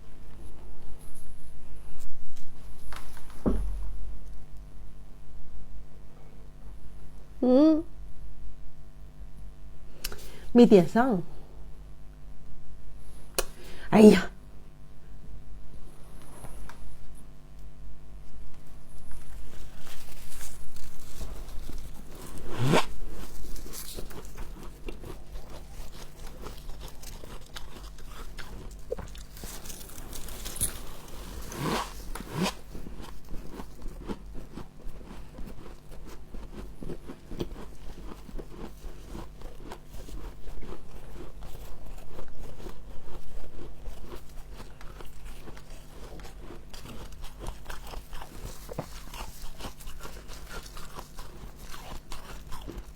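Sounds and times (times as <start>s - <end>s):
steady low hum: 0.0s - 52.9s
chewing and crunching frost: 18.6s - 52.9s.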